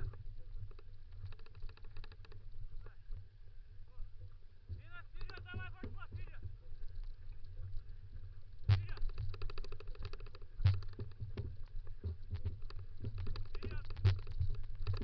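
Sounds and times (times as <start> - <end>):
scooter rattling on dirt trail: 0.0 - 3.0, 4.8 - 15.0
wind rumble on microphone: 0.0 - 15.0
knocks from scooter frame: 8.7 - 15.0.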